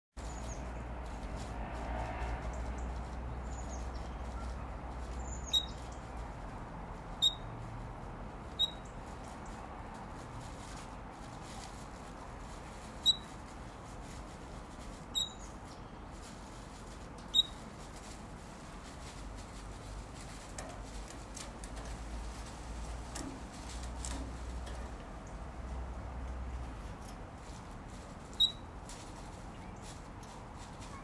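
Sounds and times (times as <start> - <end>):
high-pitched bird chirps: 5.2 - 6.0, 7.2 - 7.4, 8.6 - 8.9, 15.1 - 15.6, 17.3 - 17.6
plastic crinkle: 9.0 - 25.3.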